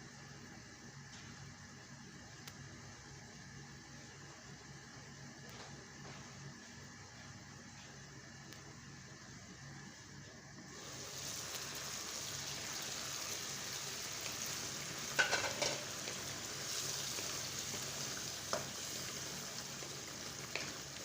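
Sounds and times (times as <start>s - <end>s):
sauce sizzling and bubbling in a pan: 10.7s - 21.0s.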